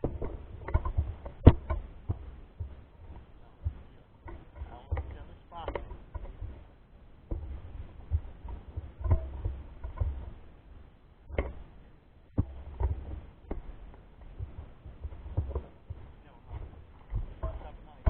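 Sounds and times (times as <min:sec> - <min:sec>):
bike knocks and rumbling thumps: 0:00.0 - 0:18.0.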